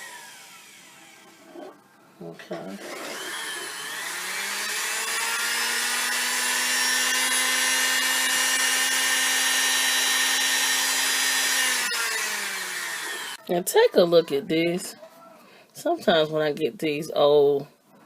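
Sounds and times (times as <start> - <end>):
sewing machine motor whirring: 2.8 - 13.4.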